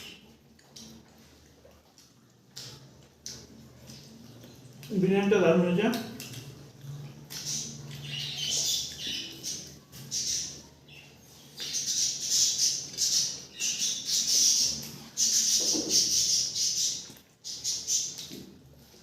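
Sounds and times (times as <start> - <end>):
person chewing food: 0.0 - 4.9.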